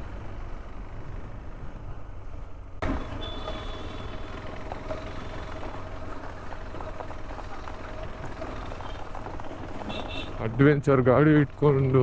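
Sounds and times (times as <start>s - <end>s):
motorcycle engine and wind: 0.0s - 12.0s.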